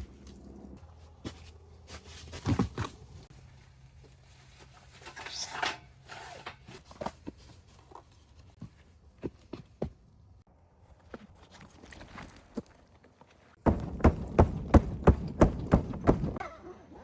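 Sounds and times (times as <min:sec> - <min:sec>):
heavy knocks of objects: 0:13.6 - 0:16.4.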